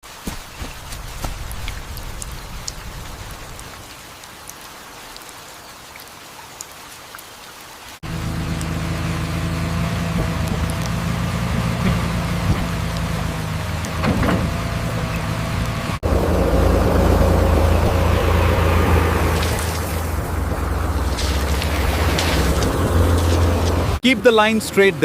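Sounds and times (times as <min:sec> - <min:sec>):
rain falling: 0:00.0 - 0:25.0
raindrops ticking: 0:00.2 - 0:07.4, 0:08.0 - 0:24.6
construction machinery engine drone: 0:08.0 - 0:24.0.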